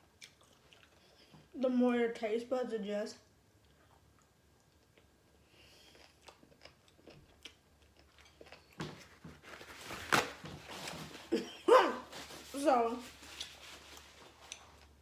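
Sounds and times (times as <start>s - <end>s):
chewing and crunching pickle: 0.0s - 1.3s, 3.6s - 9.2s, 13.4s - 15.0s.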